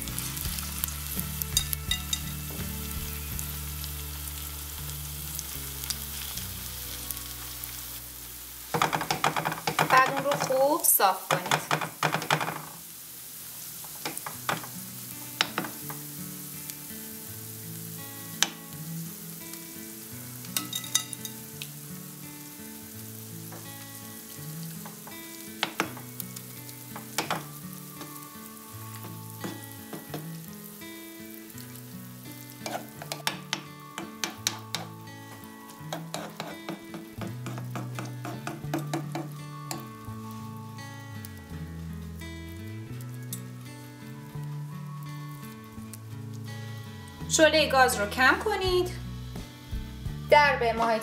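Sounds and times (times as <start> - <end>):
soft background music: 0.0 - 11.8, 14.0 - 51.0
herbs and egg sizzling in oil: 0.0 - 51.0
metal spoon scraping pan: 32.6 - 35.0, 35.9 - 39.3.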